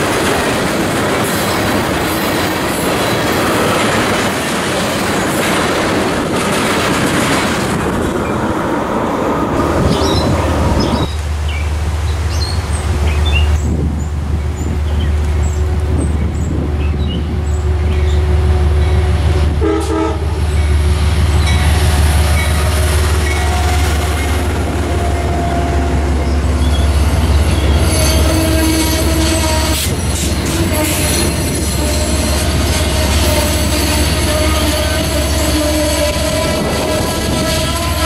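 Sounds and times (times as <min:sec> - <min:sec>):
train rumbling past: 0:00.0 - 0:38.0
locomotive horn: 0:15.5 - 0:38.0
wheel squeal: 0:26.2 - 0:34.1.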